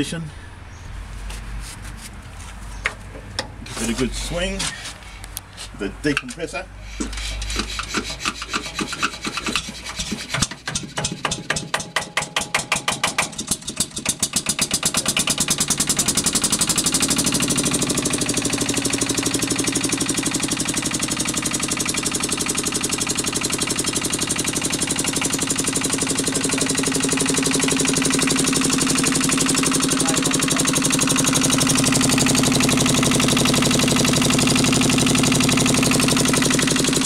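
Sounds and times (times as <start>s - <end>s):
diesel engine cranked by hand: 2.8s - 37.0s
diesel engine running: 13.4s - 37.0s.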